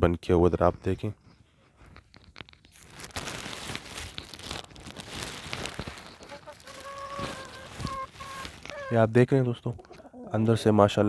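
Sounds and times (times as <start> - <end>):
plastic sheeting crinkling: 1.8 - 9.2
bird calling: 5.6 - 10.7.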